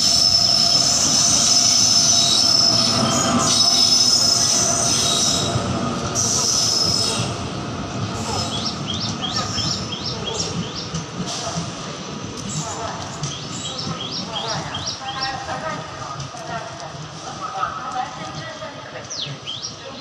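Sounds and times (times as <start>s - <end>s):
train wheels squealing: 0.0s - 7.4s, 8.1s - 10.9s
train running rumble: 0.0s - 20.0s.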